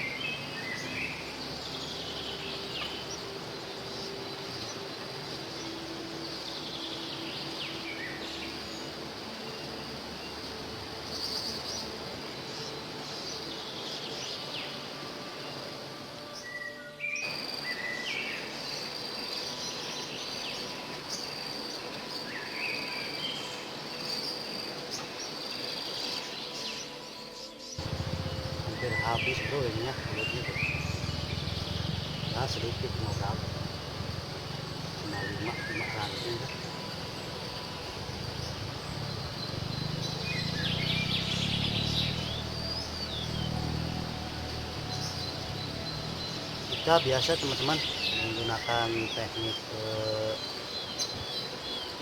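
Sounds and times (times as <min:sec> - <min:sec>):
insects trilling: 0:00.0 - 0:52.0
small birds chirping: 0:00.0 - 0:52.0
steady low rumble: 0:27.8 - 0:35.3.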